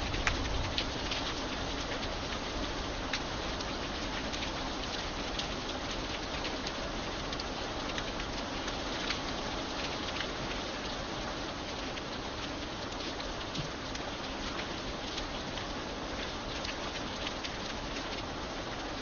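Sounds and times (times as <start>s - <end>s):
light rain on hard surface: 0.0s - 19.0s.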